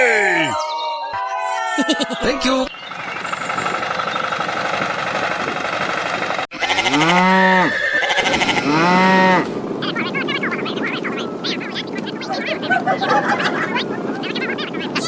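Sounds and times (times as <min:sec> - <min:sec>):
animal-like calls: 0:06.6 - 0:15.0.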